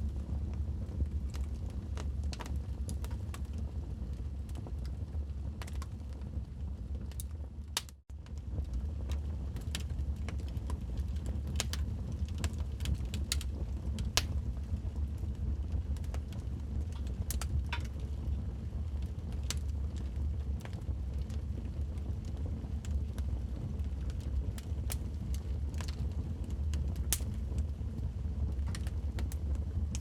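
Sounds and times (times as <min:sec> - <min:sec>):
low fire rumble: 0:00.0 - 0:30.0
wood fire crackling and popping: 0:00.0 - 0:30.0.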